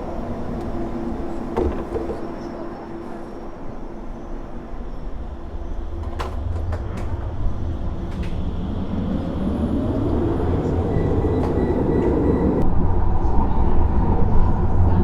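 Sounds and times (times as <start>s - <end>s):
moving vehicle rumble: 0.0s - 15.0s.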